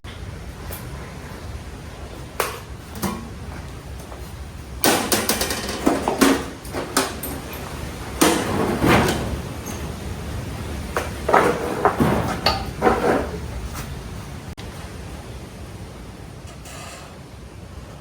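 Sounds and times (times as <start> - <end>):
metal tools knocking and clattering: 4.9 - 7.6, 11.0 - 13.4.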